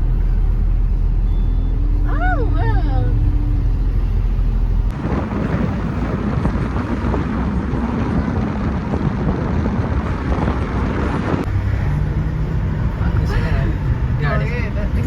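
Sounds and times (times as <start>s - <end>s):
low car hum: 0.0s - 15.0s
rumbling vehicle noise: 0.0s - 15.0s
wind buffeting microphone: 3.9s - 15.0s.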